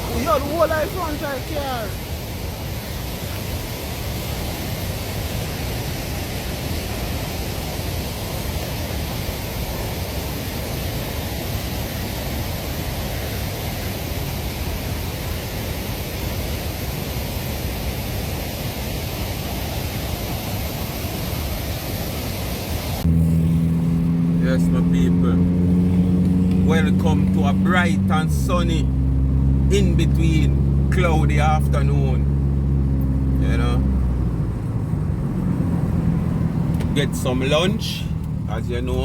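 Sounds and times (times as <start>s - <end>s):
heavy rain: 0.0s - 23.1s.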